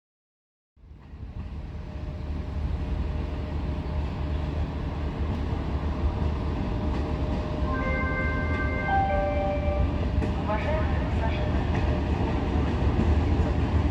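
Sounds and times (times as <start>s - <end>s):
train rumble: 0.8s - 13.9s
thin high tones: 7.7s - 10.0s.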